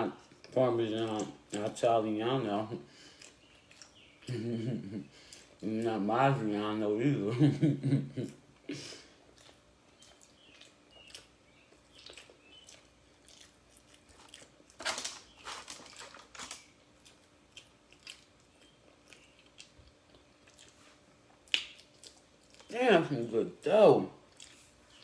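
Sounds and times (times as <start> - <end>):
person chewing bread: 0.0 - 25.0.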